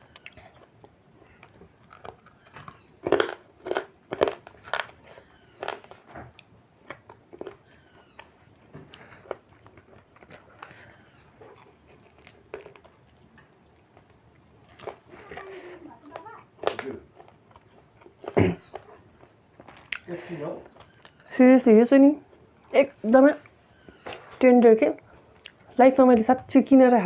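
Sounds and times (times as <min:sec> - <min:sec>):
crunchy biting and chewing: 0:00.0 - 0:21.3.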